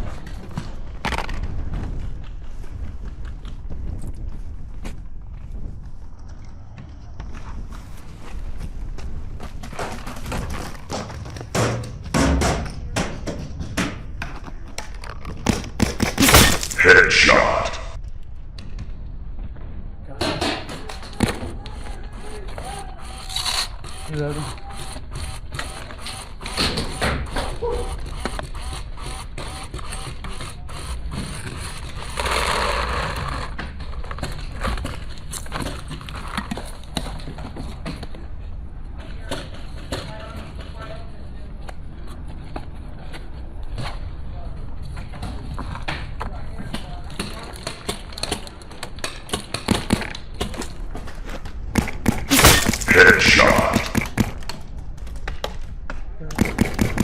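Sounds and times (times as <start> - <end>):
sharp knocks and pops: 56.4 - 57.0.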